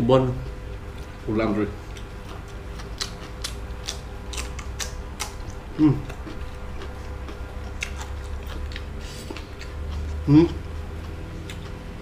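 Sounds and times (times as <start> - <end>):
steady low hum: 0.0 - 12.0
crunching and chewing: 0.4 - 12.0
person humming: 5.7 - 6.1, 10.3 - 10.6.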